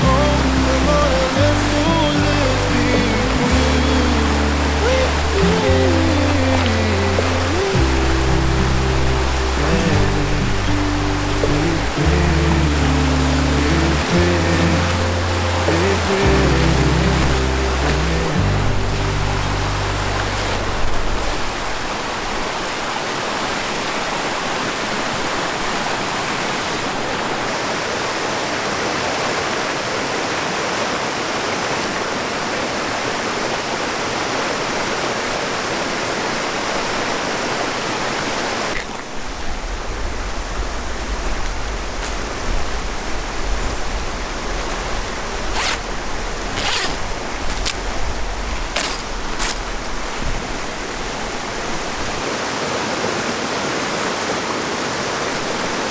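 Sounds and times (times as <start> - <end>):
wind rumble on microphone: 0.0 - 22.6, 39.2 - 52.2
river rushing: 0.0 - 55.9
strong wind: 39.2 - 52.3.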